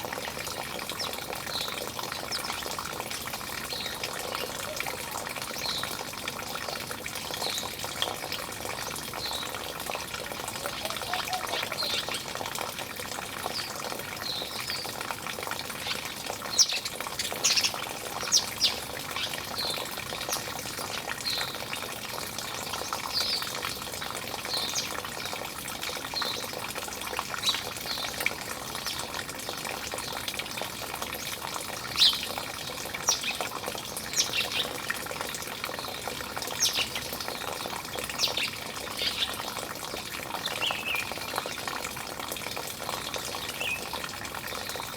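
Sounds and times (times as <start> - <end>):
running water: 0.0 - 44.9
small birds chirping: 10.5 - 12.3, 15.8 - 21.6, 33.0 - 34.8, 35.8 - 39.5.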